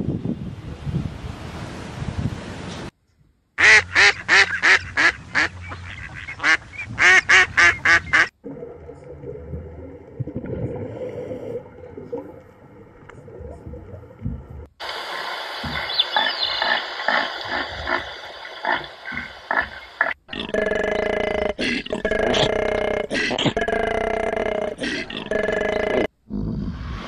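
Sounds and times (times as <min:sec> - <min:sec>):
goose honking: 0:03.6 - 0:08.3.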